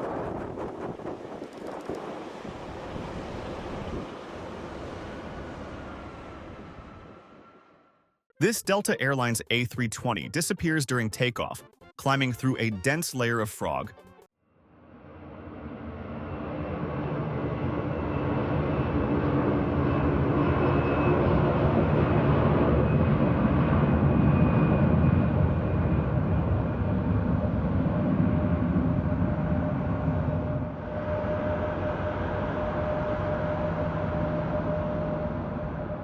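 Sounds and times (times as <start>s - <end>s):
jet engines roaring: 15.4s - 36.0s.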